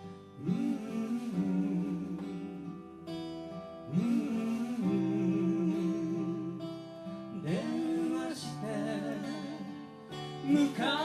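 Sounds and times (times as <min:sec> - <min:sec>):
acoustic guitar: 0:00.0 - 0:11.0
person singing: 0:00.4 - 0:02.8, 0:03.9 - 0:06.8, 0:07.4 - 0:09.8.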